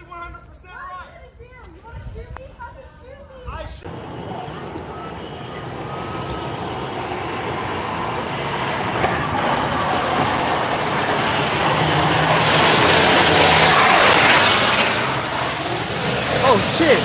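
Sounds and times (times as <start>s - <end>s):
vehicle engine hum: 3.8s - 17.0s.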